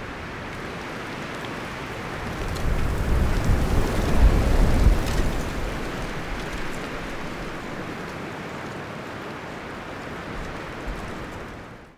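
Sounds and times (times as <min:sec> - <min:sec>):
wind rushing through trees: 0:00.0 - 0:11.9.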